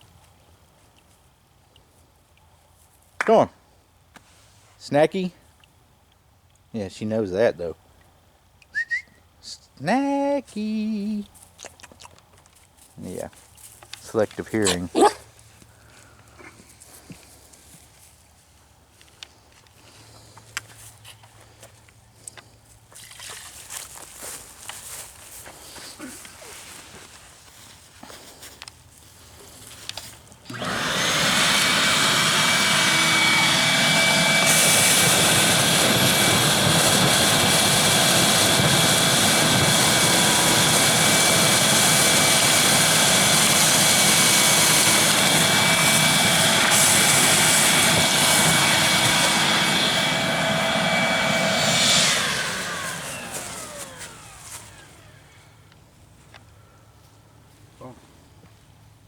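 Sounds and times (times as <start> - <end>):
vacuum sucking water: 30.5 - 55.1
wet-dry vacuum motor whine: 30.5 - 55.6.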